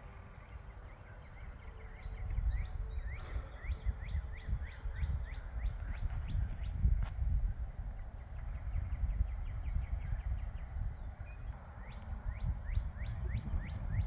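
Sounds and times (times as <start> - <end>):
low rumble on microphone: 0.0 - 14.0.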